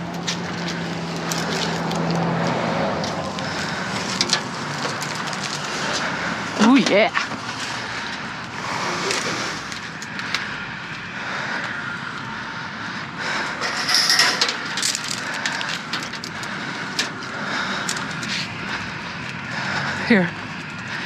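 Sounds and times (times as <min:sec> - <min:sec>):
objects clicking and clattering: 0:13.5 - 0:17.2.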